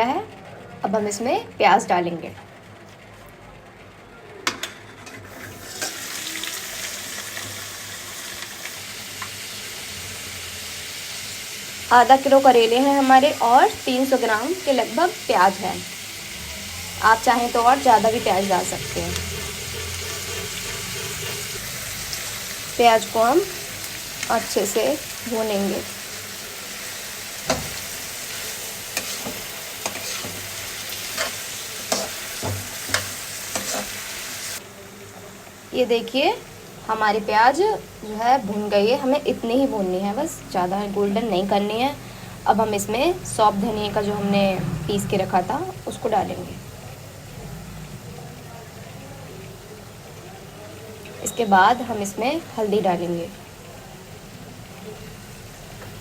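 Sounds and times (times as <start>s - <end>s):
oil sizzling: 4.9s - 56.0s
utensil scraping a pan: 18.6s - 21.8s, 28.9s - 34.0s
onions knocking into pan: 27.4s - 28.0s.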